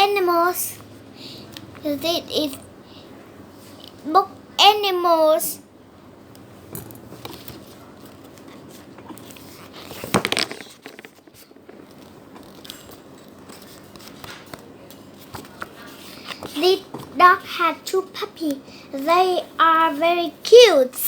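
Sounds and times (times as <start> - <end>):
faint room noise: 0.0 - 21.0
paper rustling: 7.3 - 14.6.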